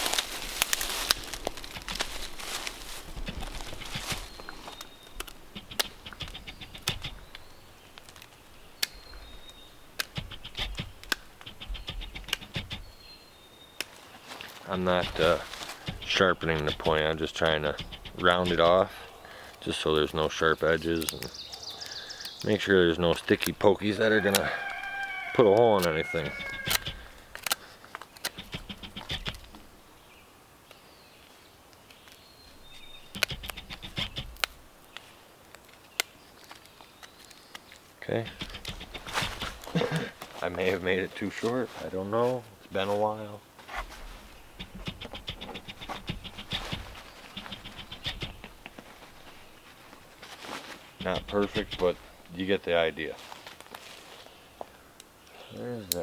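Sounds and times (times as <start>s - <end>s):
faint bird chirps: 3.6s - 15.2s, 17.7s - 22.9s.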